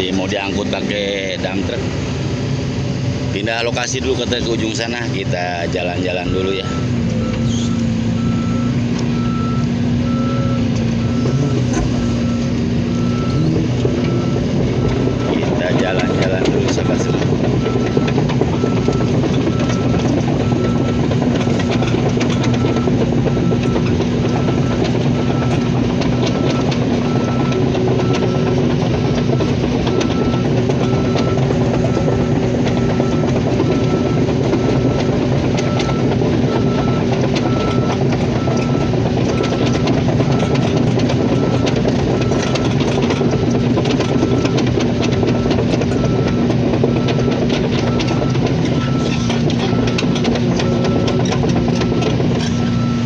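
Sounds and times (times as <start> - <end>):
diesel engine running: 0.0 - 53.0
tracks clattering: 3.4 - 53.0
travel alarm beeping: 26.2 - 53.0.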